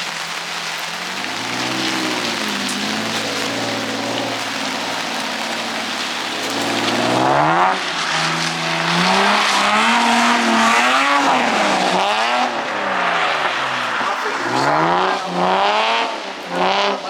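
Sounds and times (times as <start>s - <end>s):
car engine revving: 0.0s - 17.0s
tires hissing on wet surface: 0.0s - 17.0s.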